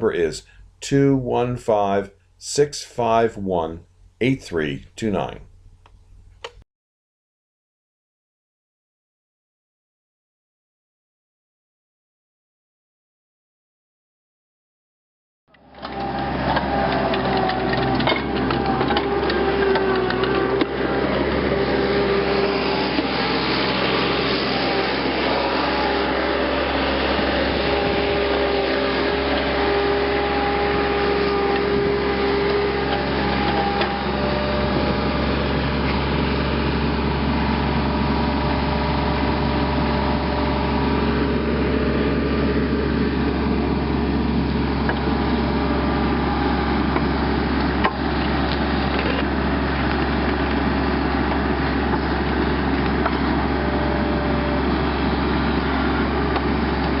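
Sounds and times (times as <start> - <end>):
power wire brush scouring metal: 15.9 - 35.9.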